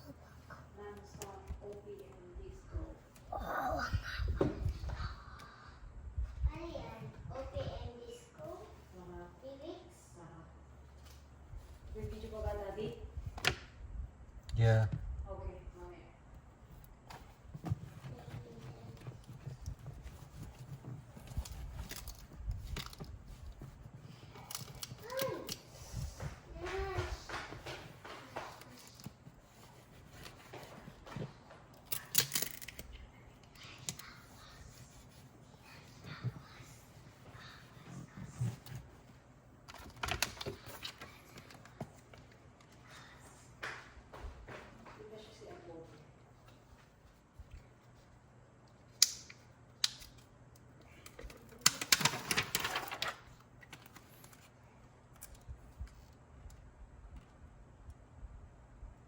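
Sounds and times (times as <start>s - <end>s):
tiles clicking and rustling: 17.1s - 34.5s, 50.9s - 54.5s
scraping and crinkling tiles: 51.0s - 54.5s.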